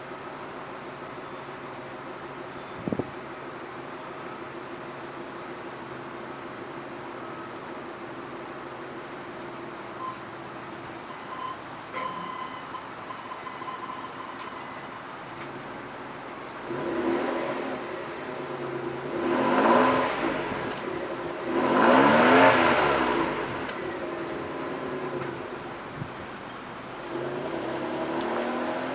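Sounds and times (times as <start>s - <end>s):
car engine idling and revving: 7.8s - 28.9s.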